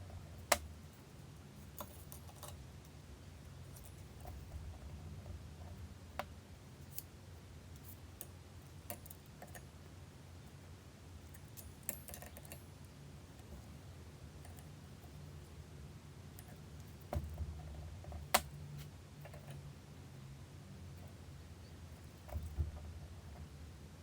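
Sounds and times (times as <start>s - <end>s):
low steady hum: 0.0s - 24.0s
tools clicking and tapping: 1.7s - 2.6s, 11.4s - 12.6s.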